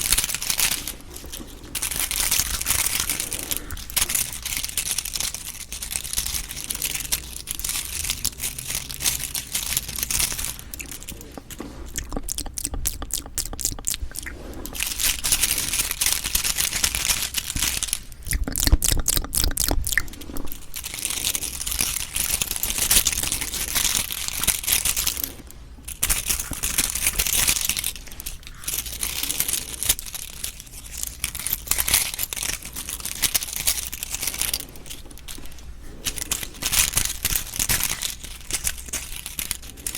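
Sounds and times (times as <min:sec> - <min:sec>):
squishy jelly eating sounds: 0:00.0 - 0:39.9
fast evenly spaced clicks: 0:01.8 - 0:20.2.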